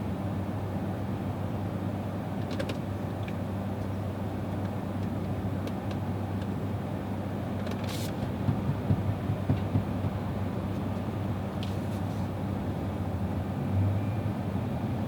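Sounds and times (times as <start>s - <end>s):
road and tyre noise in car cabin: 0.0s - 15.0s
light bumps: 7.6s - 12.2s.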